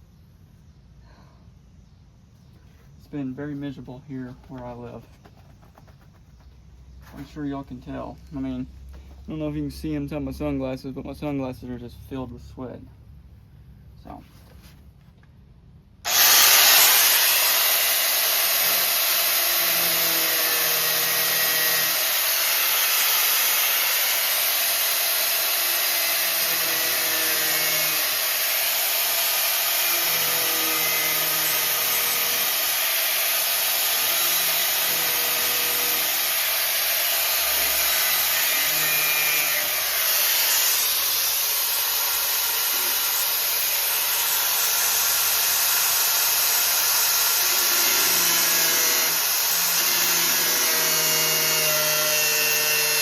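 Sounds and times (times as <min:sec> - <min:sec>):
angle grinder cutting sheet steel: 0:16.1 - 0:53.0.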